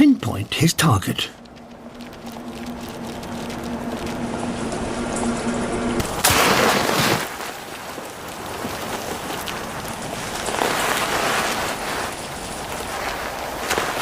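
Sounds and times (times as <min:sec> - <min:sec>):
snow rustling hiss: 0:00.7 - 0:14.0
owl plunging into snow: 0:06.0 - 0:14.0.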